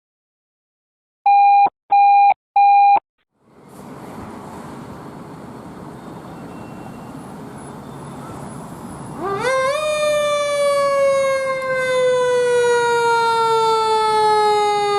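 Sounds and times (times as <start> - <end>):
short electronic beeps: 1.3 - 3.0
street noise rumble: 3.3 - 14.9.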